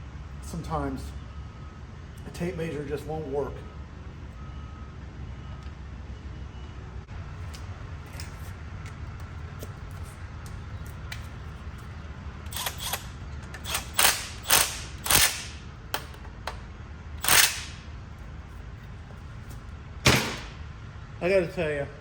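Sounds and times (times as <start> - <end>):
tools knocking and clicking: 12.5 - 16.6.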